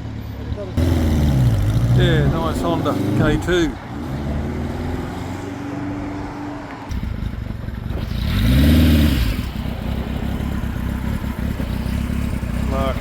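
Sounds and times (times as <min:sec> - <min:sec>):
motorcycle engines running: 0:00.0 - 0:03.8, 0:06.9 - 0:13.0.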